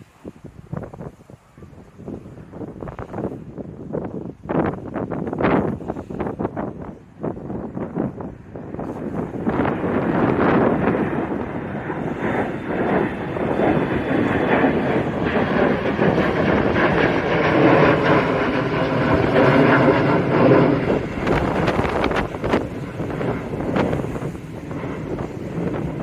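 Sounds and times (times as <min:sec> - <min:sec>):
wind buffeting microphone: 0:00.0 - 0:26.0
jet engines roaring: 0:06.9 - 0:26.0.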